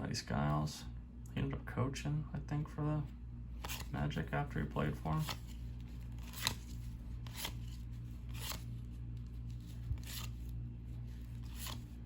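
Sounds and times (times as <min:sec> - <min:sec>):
steady low hum: 0:00.0 - 0:12.0
cards swishing while flipped: 0:03.6 - 0:04.0, 0:04.9 - 0:12.0.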